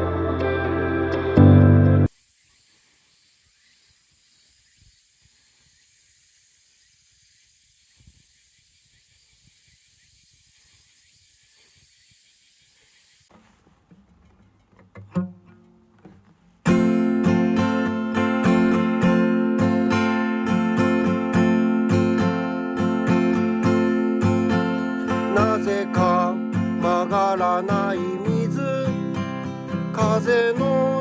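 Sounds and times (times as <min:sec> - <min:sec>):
background music: 0:00.0 - 0:02.1
faint high hiss: 0:02.0 - 0:14.1
strummed acoustic guitar: 0:13.3 - 0:31.0.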